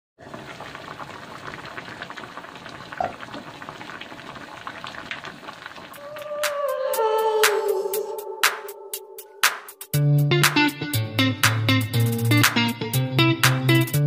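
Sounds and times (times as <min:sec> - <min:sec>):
pot bubbling and crackling: 0:00.2 - 0:07.1
music: 0:06.4 - 0:14.0.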